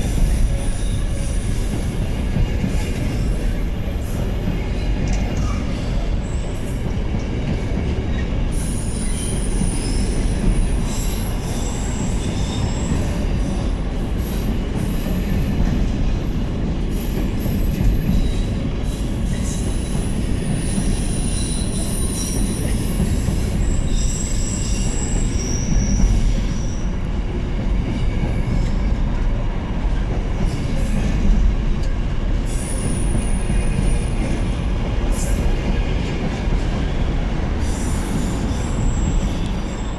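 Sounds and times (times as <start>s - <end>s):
train low rumble: 0.0s - 39.9s
wagon wheels squealing: 18.4s - 26.8s.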